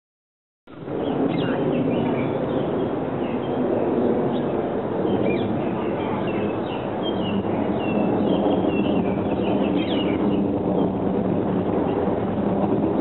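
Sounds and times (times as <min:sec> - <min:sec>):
loud steady background noise: 0:00.7 - 0:13.0
bird chirps and calls: 0:01.0 - 0:03.6, 0:05.1 - 0:10.4.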